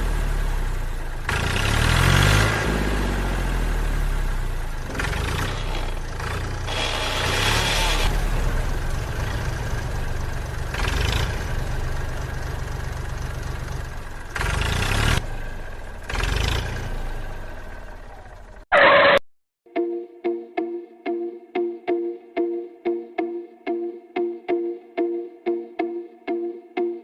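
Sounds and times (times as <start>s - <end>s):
small tractor motor humming: 0.0s - 18.6s.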